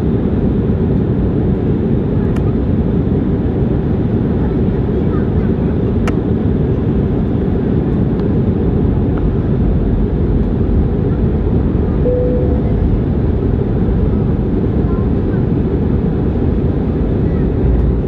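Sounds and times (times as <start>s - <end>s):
airliner cabin engine noise: 0.0s - 18.0s
faint tone: 12.1s - 13.4s.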